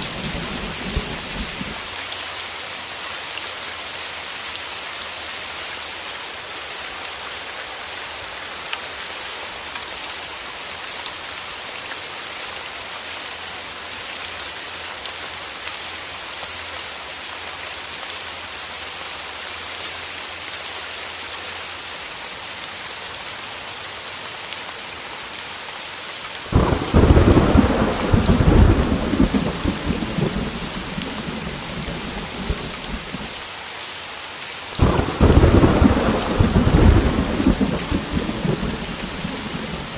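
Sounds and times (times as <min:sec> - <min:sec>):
thunderclap rumbling: 0:00.0 - 0:01.8, 0:26.5 - 0:33.3, 0:34.8 - 0:39.9
heavy rain falling: 0:00.0 - 0:39.9.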